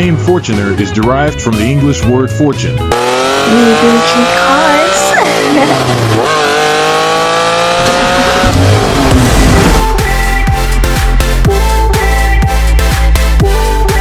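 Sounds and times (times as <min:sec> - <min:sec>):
car engine accelerating: 0:02.9 - 0:11.2.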